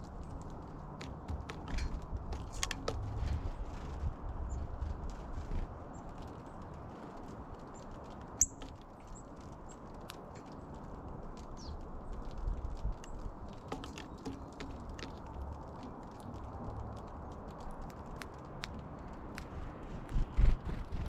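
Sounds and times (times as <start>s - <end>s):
small birds chirping: 3.5s - 5.0s, 5.8s - 16.4s.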